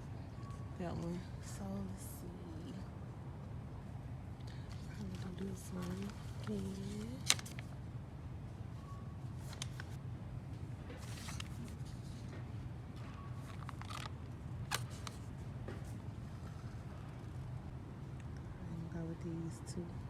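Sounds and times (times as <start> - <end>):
steady low hum: 0.0 - 20.0
packaging rustling: 4.7 - 7.7, 9.4 - 10.0, 10.9 - 12.3, 13.0 - 15.3.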